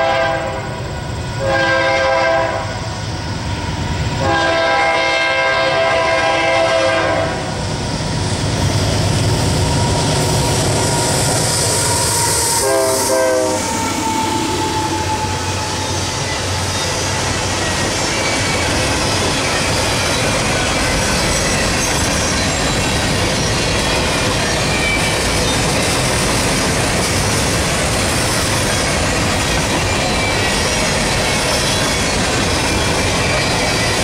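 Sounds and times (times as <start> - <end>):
steel wheels on rails: 2.9 - 34.0
high wheel squeal: 8.5 - 26.3, 28.2 - 34.0.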